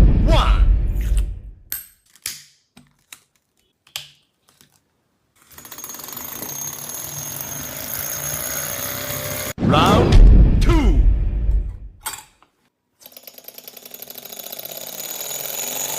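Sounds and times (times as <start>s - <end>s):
rapid mechanical ticking: 13.0s - 15.9s.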